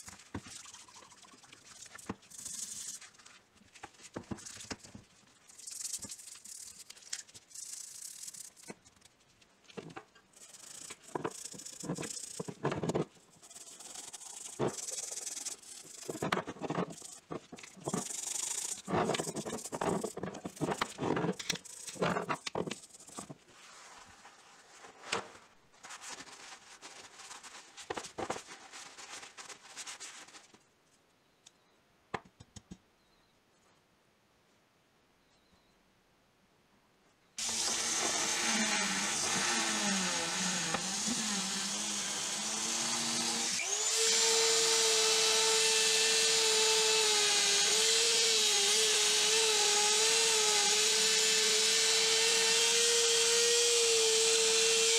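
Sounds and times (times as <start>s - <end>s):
toothbrush scrubbing metal: 0.0s - 3.3s, 4.3s - 8.8s, 10.3s - 23.4s.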